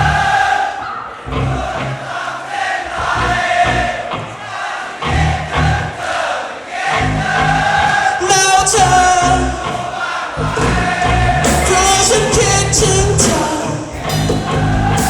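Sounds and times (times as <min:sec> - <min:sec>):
person singing: 0:08.2 - 0:09.8, 0:10.5 - 0:15.0
live pop band playing: 0:08.2 - 0:15.0.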